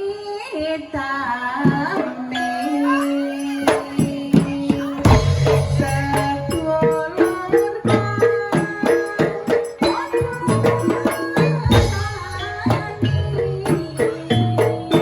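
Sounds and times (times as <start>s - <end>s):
gamelan metal percussion: 1.6s - 15.0s
jingling percussion: 1.6s - 15.0s
low drum strokes: 4.4s - 8.2s.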